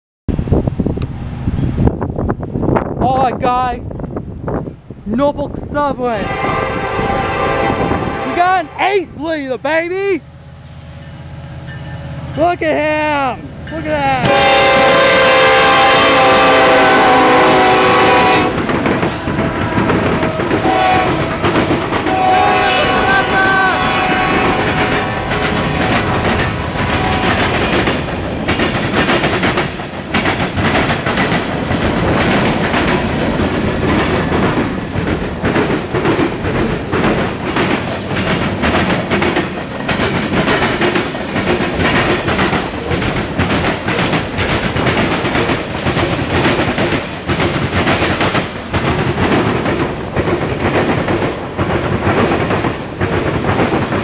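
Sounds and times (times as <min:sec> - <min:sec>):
freight train rumbling past: 0:00.3 - 0:54.0
wheels clacking over rail joints: 0:13.6 - 0:54.0.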